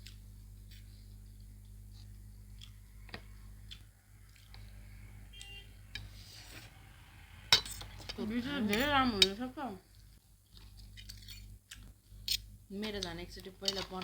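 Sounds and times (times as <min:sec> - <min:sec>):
low steady hum: 0:00.0 - 0:14.0
cutlery tapping a plate: 0:13.6 - 0:14.0.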